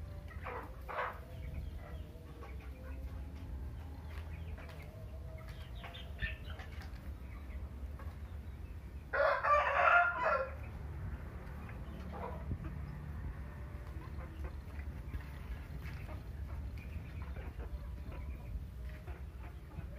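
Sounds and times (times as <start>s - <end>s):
chickens clucking: 0.0s - 19.9s
rooster crowing: 9.1s - 10.6s.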